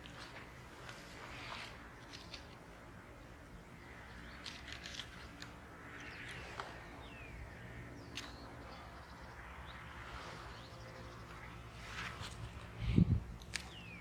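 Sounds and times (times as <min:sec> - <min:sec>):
small birds chirping: 0:03.3 - 0:14.0.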